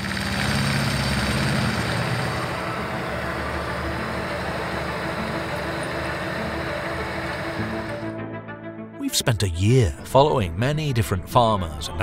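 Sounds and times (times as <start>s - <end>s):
tractor engine running: 0.0s - 8.1s.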